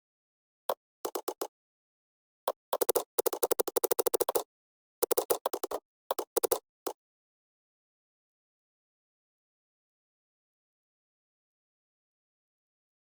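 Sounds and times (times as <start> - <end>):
computer keyboard typing: 1.1 - 1.5, 2.5 - 4.4, 5.0 - 6.6.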